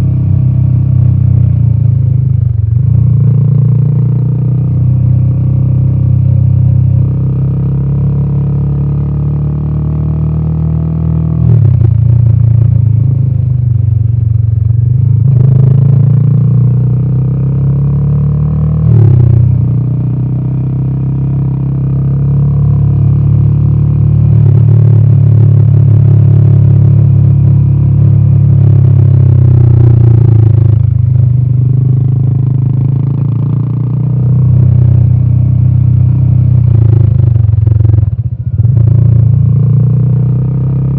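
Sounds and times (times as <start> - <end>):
motorcycle engine exhaust note: 0.0 - 40.9.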